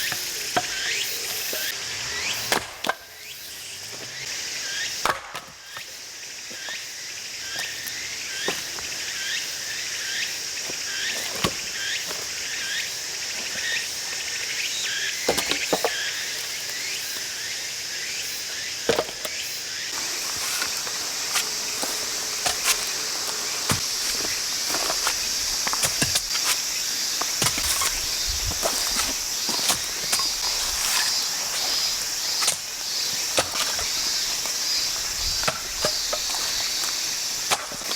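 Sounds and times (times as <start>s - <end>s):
insects droning: 0.0s - 37.9s
firewood knocks: 20.0s - 26.6s.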